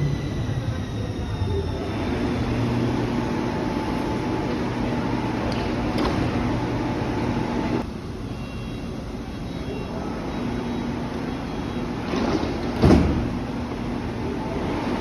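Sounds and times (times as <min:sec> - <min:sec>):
train rumbling: 0:00.0 - 0:08.3, 0:08.9 - 0:15.0
loud thump: 0:12.8 - 0:13.4.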